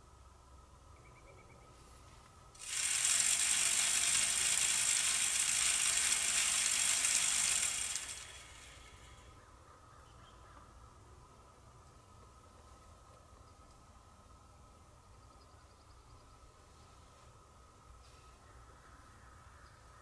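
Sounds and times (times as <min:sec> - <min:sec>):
high-pitched rattling: 0:02.6 - 0:09.2.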